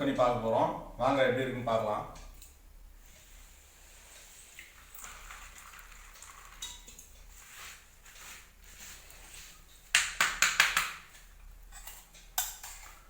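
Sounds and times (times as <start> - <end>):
utensils clinking against dishes: 11.7 - 13.0.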